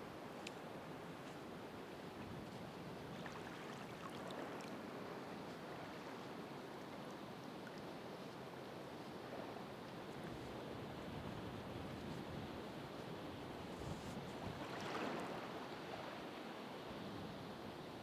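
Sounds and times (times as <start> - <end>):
surf washing onto shore: 13.9 - 16.3.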